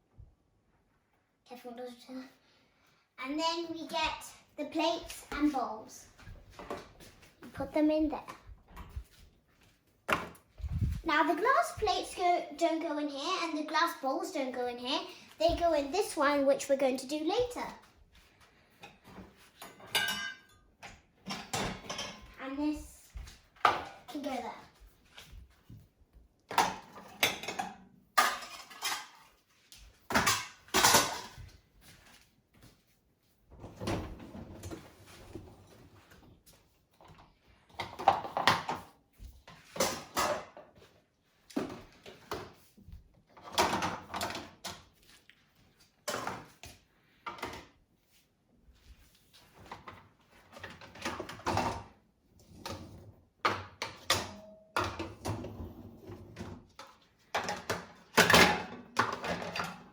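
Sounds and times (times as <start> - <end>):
plates and bowls clattering: 19.7 - 20.6, 26.5 - 29.3, 30.1 - 31.4.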